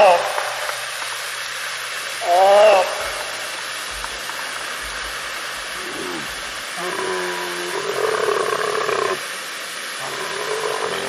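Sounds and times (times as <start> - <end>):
steady hiss: 0.0 - 11.0
animal's drawn-out call: 5.7 - 9.3, 10.0 - 11.0.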